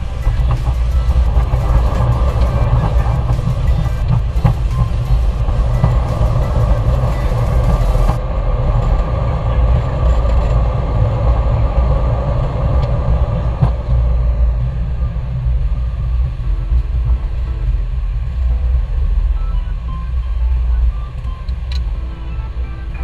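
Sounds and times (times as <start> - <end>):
high hiss: 0.0 - 8.2
aircraft flight deck rumble: 0.0 - 23.0.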